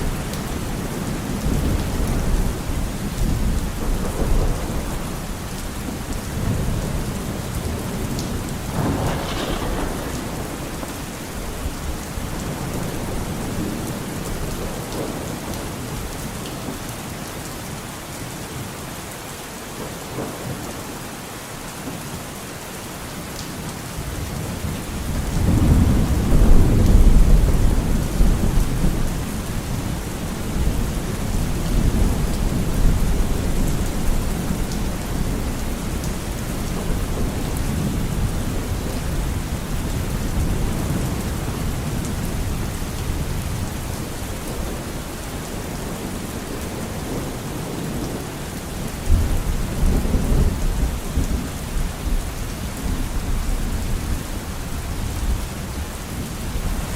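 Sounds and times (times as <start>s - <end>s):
rolling thunder: 0.0s - 16.1s, 24.6s - 52.2s
heavy rain: 0.0s - 56.9s.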